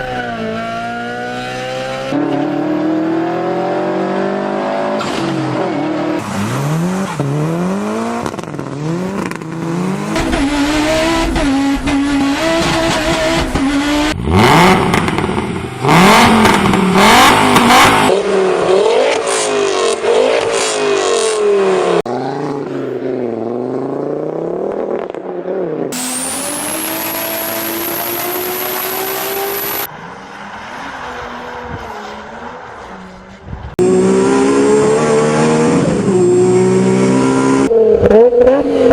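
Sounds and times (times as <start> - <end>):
car engines revving: 0.0 - 38.9.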